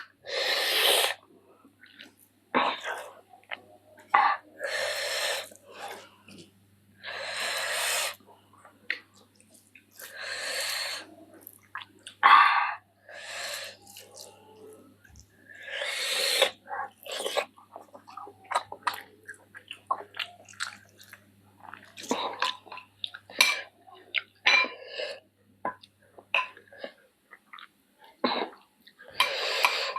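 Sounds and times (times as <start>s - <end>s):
hissing breaths blown out: 7.0s - 8.2s, 10.1s - 11.1s
wet chewing smacks: 16.4s - 23.3s.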